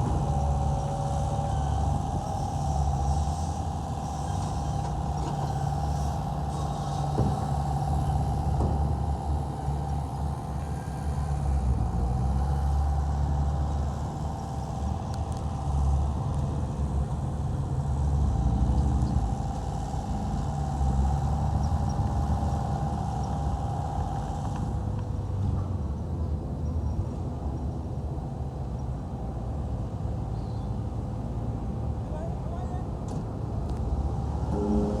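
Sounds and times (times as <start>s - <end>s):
diesel engine drone: 0.0s - 35.0s
steady high whine: 33.8s - 35.0s.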